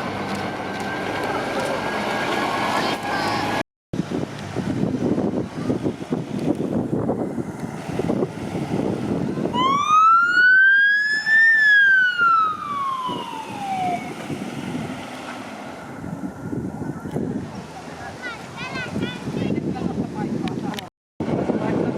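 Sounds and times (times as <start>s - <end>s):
fire truck siren wail: 9.4s - 14.5s.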